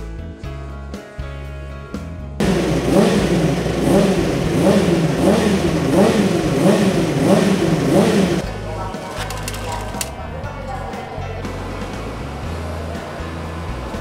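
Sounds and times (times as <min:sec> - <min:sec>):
racing motorcycle engine revving: 0:02.4 - 0:10.2.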